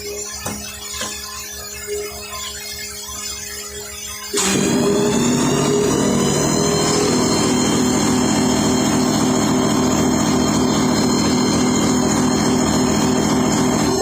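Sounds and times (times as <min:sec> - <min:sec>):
engine running: 0:04.4 - 0:14.0.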